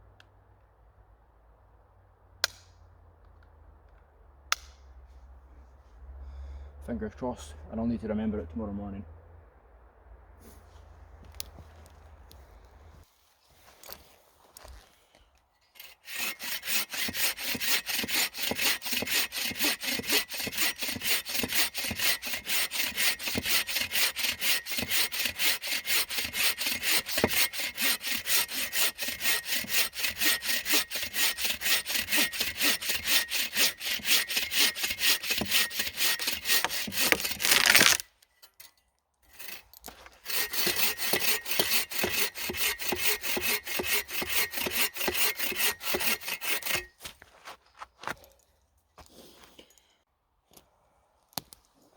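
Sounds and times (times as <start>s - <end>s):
hand saw cutting wood: 15.8s - 38.0s, 39.2s - 48.2s.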